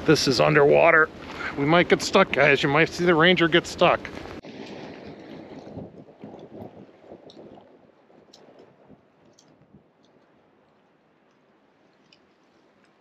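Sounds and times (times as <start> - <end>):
water sloshing and gurgling: 0.0 - 10.0.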